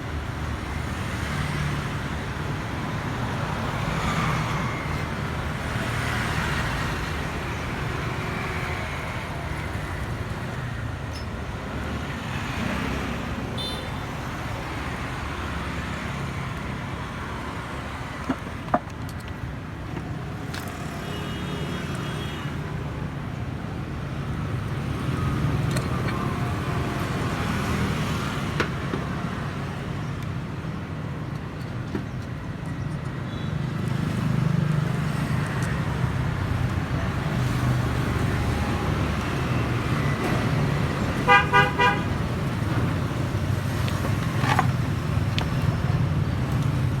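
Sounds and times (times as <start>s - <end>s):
low road traffic rumble: 0.0s - 47.0s
vehicle horn tooting: 41.3s - 42.1s.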